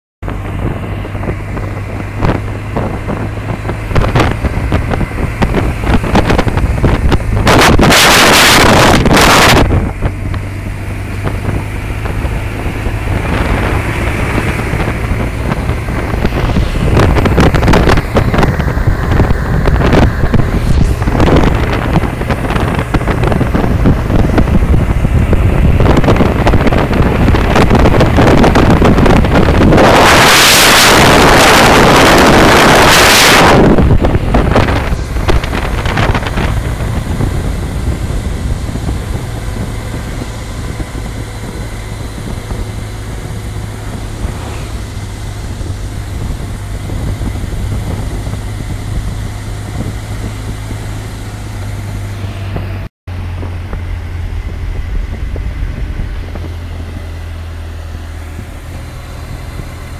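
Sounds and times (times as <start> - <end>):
loud rush of noise: 0.2 - 59.9
motorcycle engine humming: 0.2 - 59.9
wind buffeting microphone: 0.2 - 59.9.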